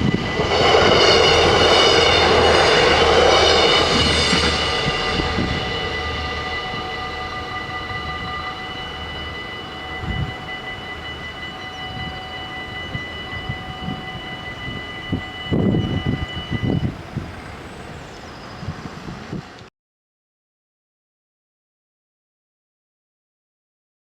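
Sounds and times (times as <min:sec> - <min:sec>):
level-crossing bells ringing: 0:00.0 - 0:18.6
passing train rumbling: 0:00.0 - 0:19.7.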